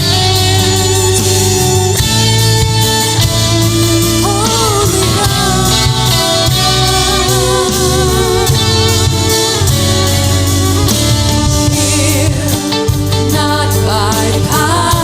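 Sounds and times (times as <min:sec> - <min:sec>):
bass guitar: 0:00.0 - 0:15.0
guitars: 0:00.0 - 0:15.0
person singing: 0:03.6 - 0:10.0, 0:10.7 - 0:15.0.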